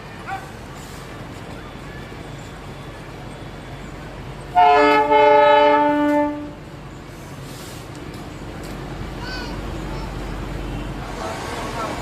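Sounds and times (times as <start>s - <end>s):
train horn blasts: 4.5s - 6.6s.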